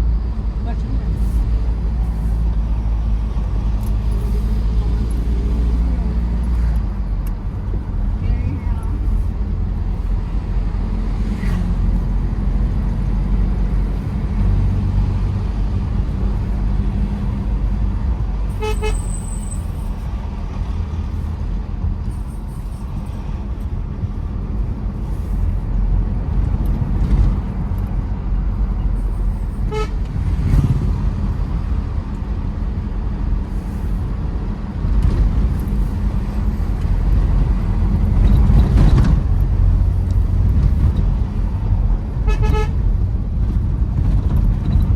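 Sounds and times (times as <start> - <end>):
car engine and tyres rumbling: 0.0 - 44.9
car horn toots: 18.5 - 19.2, 29.7 - 30.0, 42.2 - 42.8.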